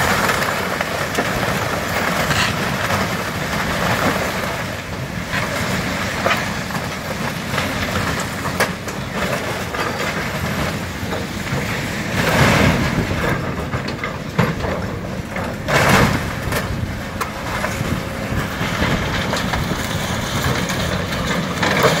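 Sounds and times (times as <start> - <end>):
heavy construction machinery running: 0.0 - 22.0.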